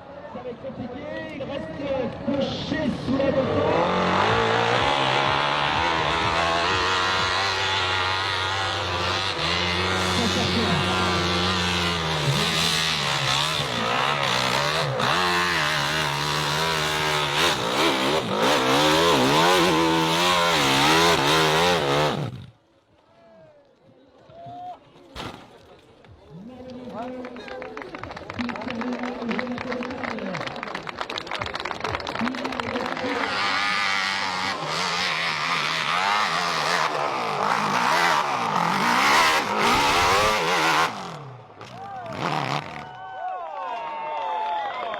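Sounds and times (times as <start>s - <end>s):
motorcycle engine revving: 2.7s - 22.6s, 32.1s - 42.9s.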